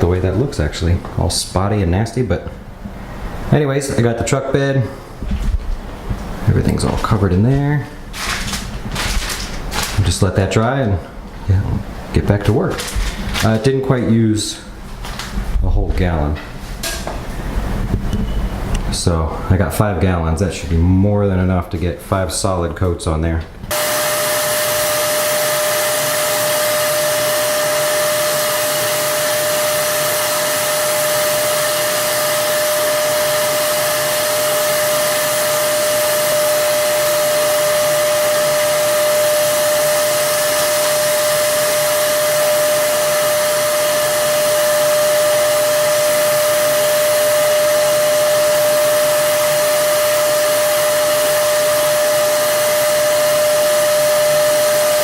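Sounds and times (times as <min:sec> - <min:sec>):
electric spray gun whine: 0:23.7 - 0:55.0.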